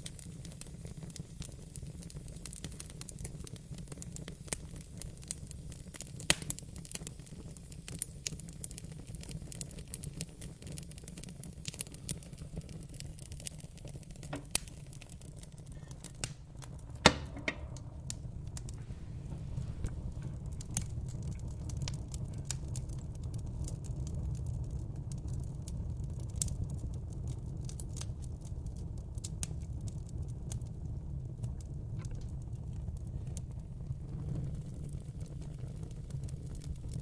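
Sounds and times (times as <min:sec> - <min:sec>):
low rumble of flames: 0:00.0 - 0:37.0
wood fire crackling: 0:00.0 - 0:37.0
sharp pops and snaps: 0:05.8 - 0:18.9.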